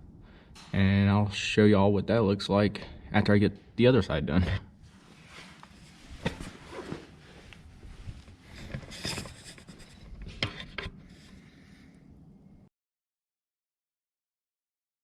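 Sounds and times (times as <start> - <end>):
metal parts rubbing and scraping: 7.9 - 11.5.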